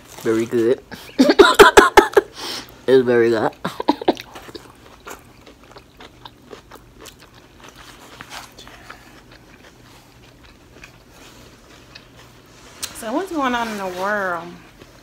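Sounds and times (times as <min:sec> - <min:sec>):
chewing and biting: 0:04.0 - 0:13.0.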